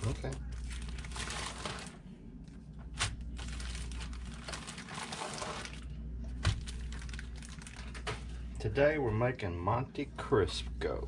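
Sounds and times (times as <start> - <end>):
crinkling and rustling: 0.0 - 8.4
steady low hum: 0.0 - 11.0.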